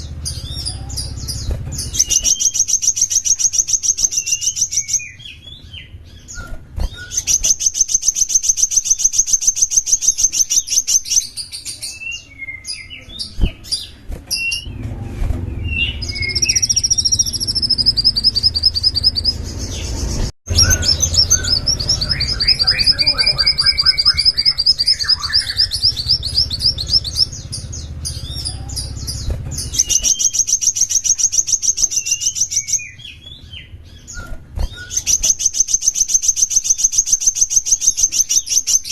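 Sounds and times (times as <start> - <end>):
songbird singing trills: 0.0 - 14.9, 15.5 - 38.9
low rumble: 14.6 - 30.0.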